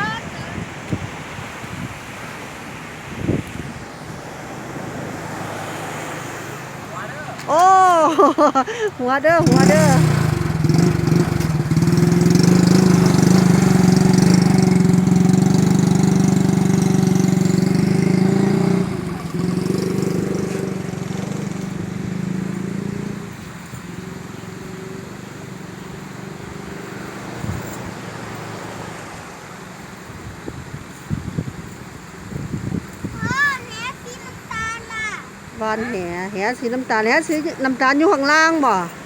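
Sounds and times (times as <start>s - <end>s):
small engine running: 8.7s - 29.0s.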